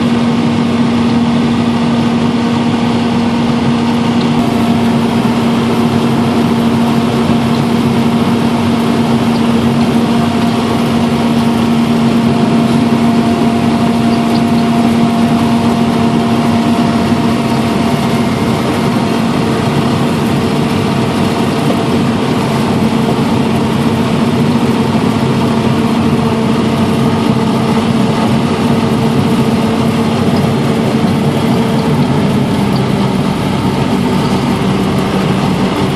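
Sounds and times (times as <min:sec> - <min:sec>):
harvester engine drone: 0:00.0 - 0:35.9
steady whining tones: 0:00.0 - 0:35.9.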